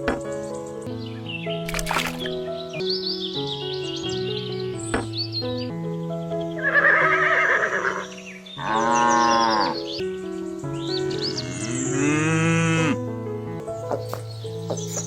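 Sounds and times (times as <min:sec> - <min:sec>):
background music: 0:00.0 - 0:15.0
cow mooing: 0:08.6 - 0:09.8, 0:11.4 - 0:13.0
birds chirping: 0:13.6 - 0:15.0.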